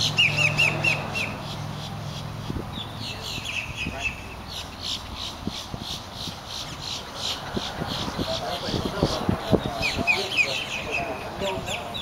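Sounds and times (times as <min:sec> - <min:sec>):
bird chirping down-slurred notes: 0:00.0 - 0:08.2.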